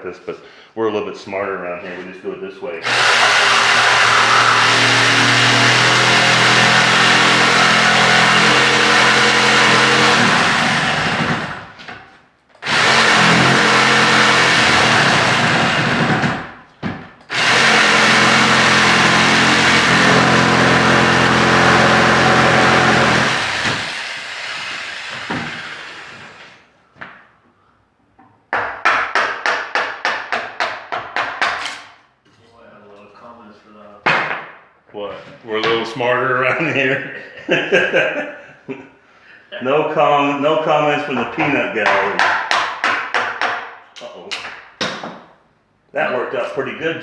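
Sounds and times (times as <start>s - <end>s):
jigsaw cutting wood: 2.8s - 11.8s, 12.6s - 16.6s, 17.3s - 26.6s.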